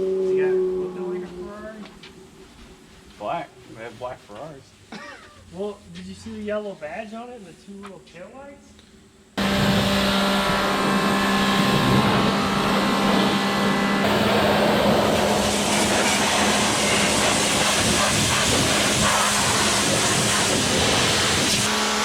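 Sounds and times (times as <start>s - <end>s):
pressure washer motor hum: 9.4s - 22.0s
high-pressure water spray hiss: 14.0s - 22.0s.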